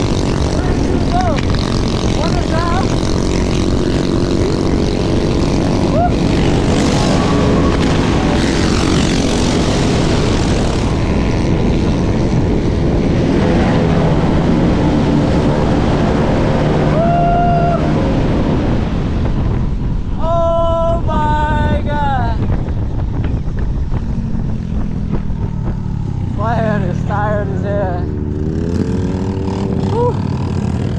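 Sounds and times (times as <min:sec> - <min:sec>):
wind rushing over microphone: 0:00.0 - 0:30.9
electric motors humming: 0:01.5 - 0:11.1.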